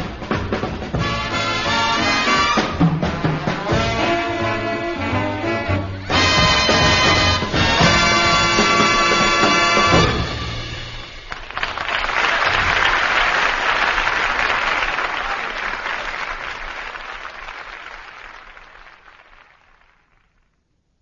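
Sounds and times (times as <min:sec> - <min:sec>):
audience applauding: 0:11.2 - 0:20.6.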